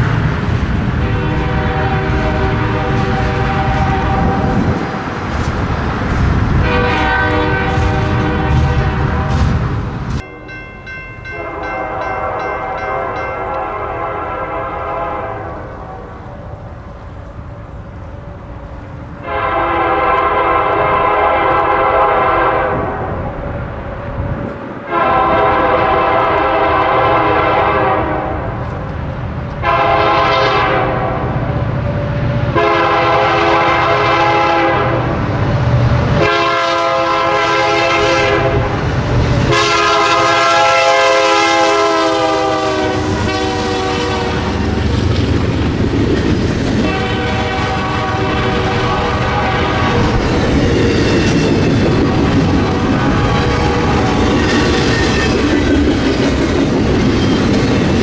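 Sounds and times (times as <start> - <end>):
locomotive engine rumble: 0.0 - 58.0
locomotive air horn blasts: 0.9 - 5.0, 6.5 - 10.3, 11.3 - 16.6, 19.2 - 28.6, 29.6 - 31.4, 32.2 - 35.2, 36.1 - 44.8, 46.8 - 55.3.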